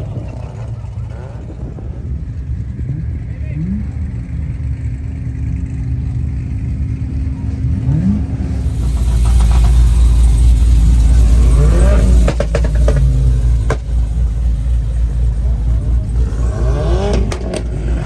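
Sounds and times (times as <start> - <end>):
car engine revving: 0.0 - 18.0
exhaust cracks: 8.2 - 18.0.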